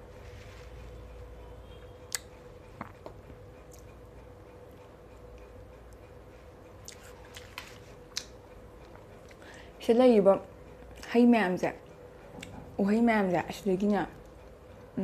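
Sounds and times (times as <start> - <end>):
steady low hum: 0.0 - 15.0
person chewing: 6.8 - 9.5.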